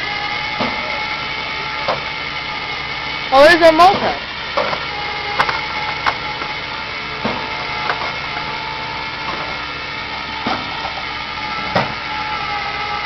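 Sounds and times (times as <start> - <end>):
truck engine running: 0.0 - 13.0
sharp clanks and knocks: 3.8 - 6.6, 7.2 - 8.5, 10.4 - 12.0.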